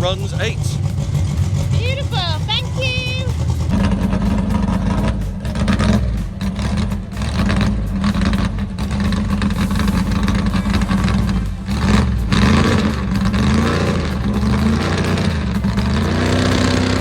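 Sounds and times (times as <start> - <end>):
race car engine rough idle: 0.0 - 17.0.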